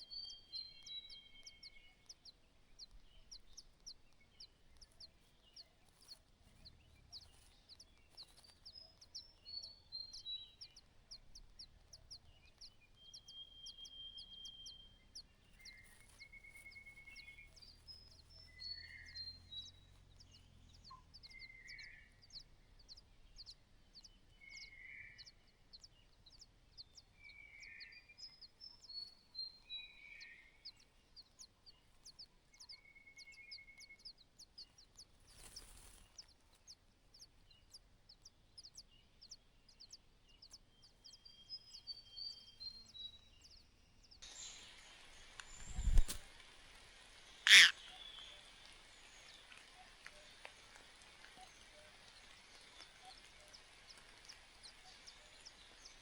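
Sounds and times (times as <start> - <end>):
buzzy bird calls: 0.0 - 56.0
high bird chirps: 44.2 - 46.3, 47.2 - 50.4
descending bird trills: 47.2 - 48.4.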